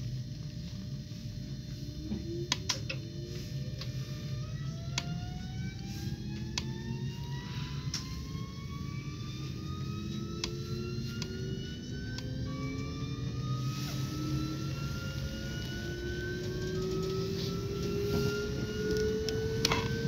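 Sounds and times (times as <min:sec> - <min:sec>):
electric train motor whine: 0:00.0 - 0:20.0
train low rumble: 0:00.0 - 0:20.0
track clicks: 0:14.6 - 0:20.0.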